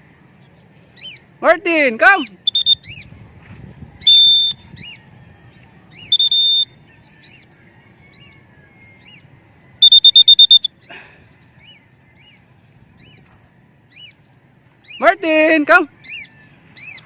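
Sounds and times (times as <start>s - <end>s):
cockatiel whistling: 2.4s - 3.0s, 4.0s - 4.6s, 6.1s - 6.7s, 9.8s - 10.7s
faint rising and falling chirps: 2.4s - 3.0s, 4.0s - 4.6s, 6.0s - 6.9s, 9.8s - 10.8s.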